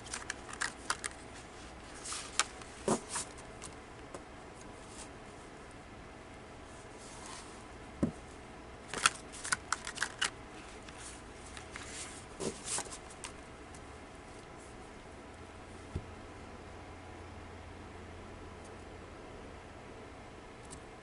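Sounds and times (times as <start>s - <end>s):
cards being shuffled: 0.0s - 3.8s, 8.9s - 13.4s.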